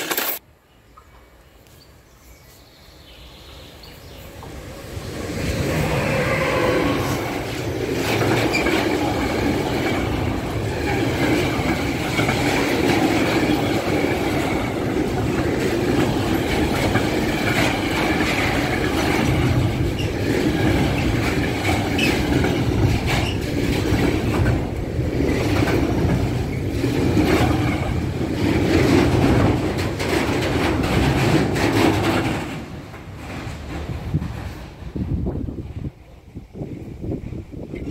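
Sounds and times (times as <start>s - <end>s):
freight train rumbling past: 3.2s - 37.9s
wheels clacking over rail joints: 7.3s - 34.7s.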